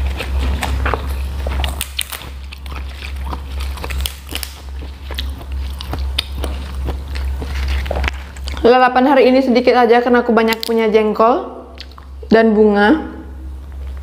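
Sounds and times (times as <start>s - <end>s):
chewing with wet mouth clicks: 0.0s - 8.7s, 11.7s - 12.2s
low electrical hum: 0.0s - 14.0s
vegetable stalks snapping: 0.6s - 4.7s.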